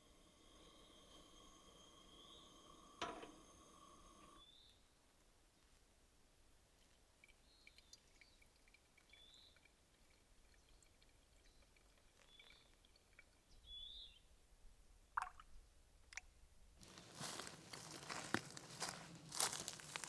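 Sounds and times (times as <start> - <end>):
faint bird chirps: 0.1 - 4.9, 7.3 - 9.7, 10.5 - 14.3.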